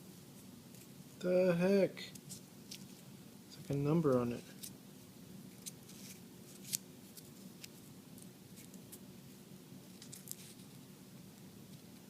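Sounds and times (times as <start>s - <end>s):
steady low hum: 0.0s - 12.0s
paper slip crinkling: 2.1s - 4.8s, 5.5s - 9.0s, 9.9s - 10.8s.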